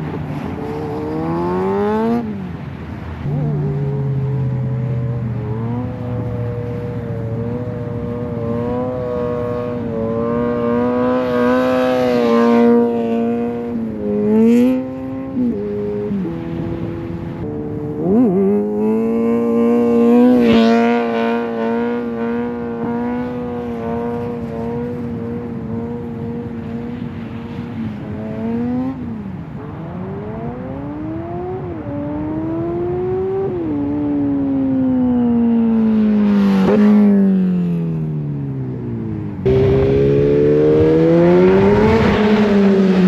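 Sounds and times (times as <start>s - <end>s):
motorcycle exhaust revving: 39.4s - 43.0s.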